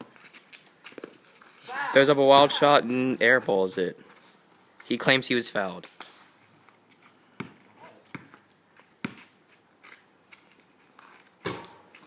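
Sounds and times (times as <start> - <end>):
basketball bouncing on pavement: 7.4 - 9.4, 11.4 - 12.0.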